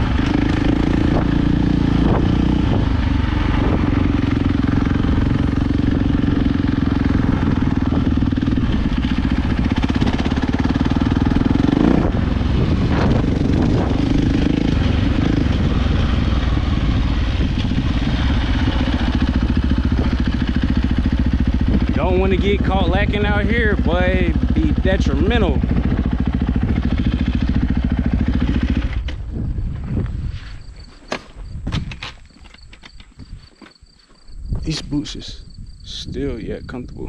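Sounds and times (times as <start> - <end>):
dirt bike engine revving: 0.0 - 29.4.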